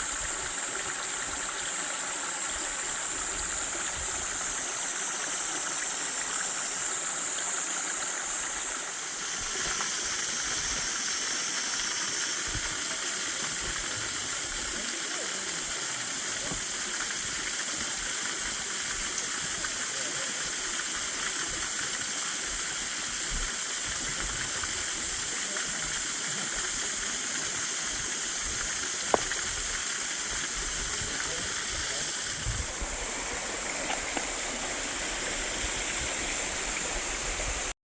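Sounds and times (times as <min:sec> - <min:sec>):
waterfall rushing: 0:18.9 - 0:37.7.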